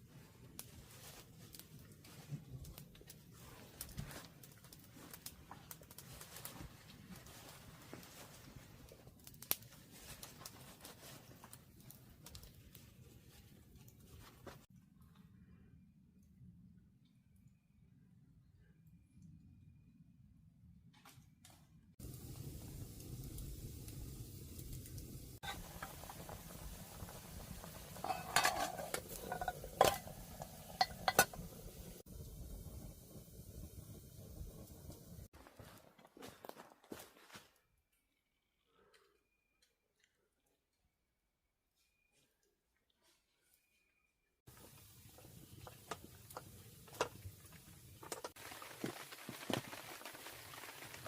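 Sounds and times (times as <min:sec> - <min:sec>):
metal utensil clinking on pot: 0:28.0 - 0:31.5.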